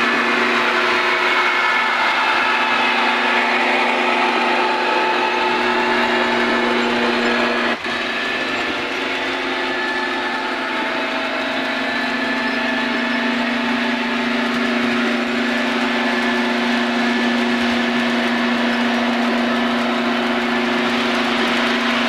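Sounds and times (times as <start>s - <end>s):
model train diesel engine drone: 0.0s - 22.0s
wheel noise on track: 0.0s - 22.0s.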